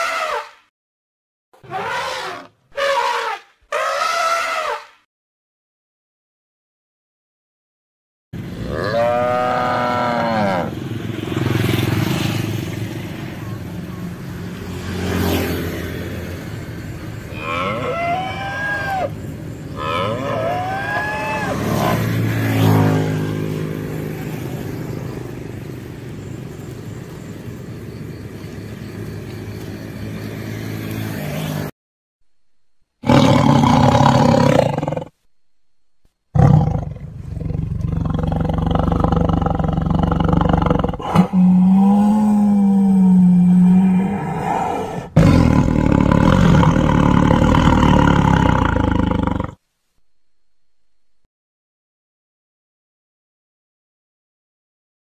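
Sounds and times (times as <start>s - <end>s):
rising and falling animal calls: 0.0s - 0.6s, 1.6s - 4.9s, 8.5s - 10.8s, 17.3s - 23.6s, 36.4s - 49.6s
tiger growling and roaring: 33.0s - 35.2s, 36.3s - 49.6s.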